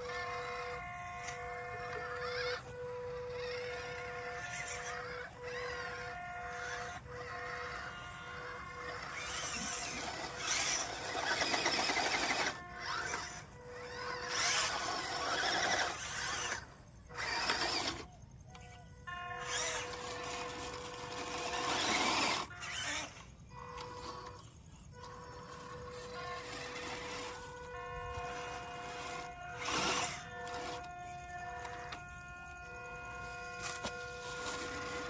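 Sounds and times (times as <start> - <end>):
toy car electric motor whirring: 0.0 - 35.0.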